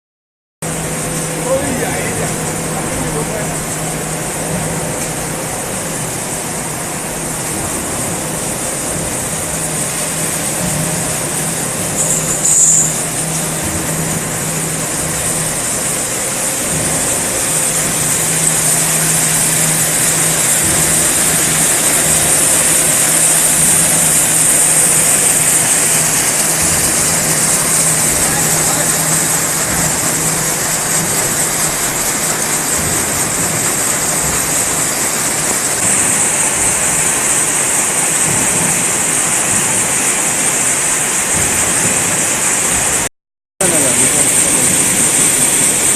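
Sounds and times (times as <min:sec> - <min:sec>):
slitting machine low hum: 0:00.6 - 0:45.9
sharp high-pitched squeal: 0:11.9 - 0:13.1.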